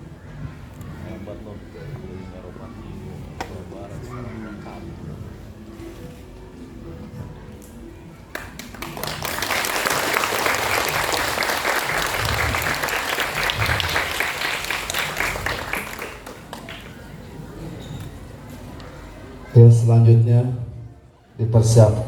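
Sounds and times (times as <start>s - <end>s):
audience applauding: 8.3s - 17.1s.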